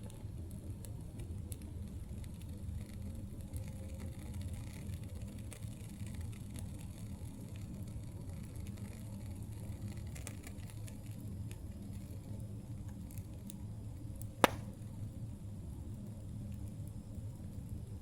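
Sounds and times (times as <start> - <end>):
campfire crackling: 0.0 - 18.0
low rumble of fire: 0.0 - 18.0
loud sharp pop: 14.4 - 14.8.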